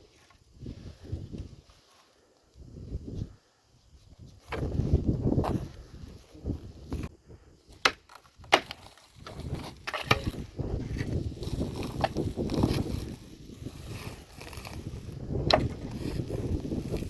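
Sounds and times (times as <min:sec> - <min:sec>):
wood cracking: 0:07.7 - 0:13.2.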